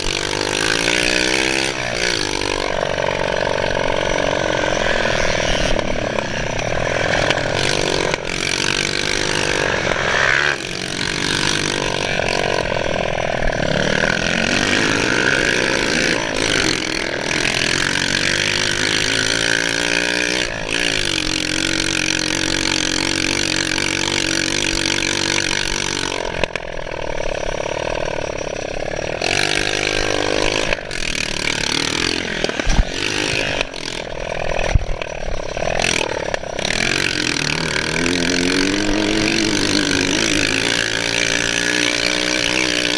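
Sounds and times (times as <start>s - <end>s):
motocross bike engine revving: 0.0s - 42.9s.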